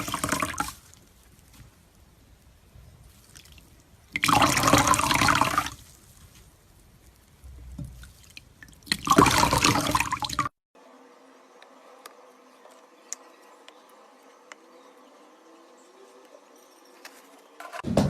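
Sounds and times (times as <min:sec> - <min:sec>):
water running: 0:00.0 - 0:10.5.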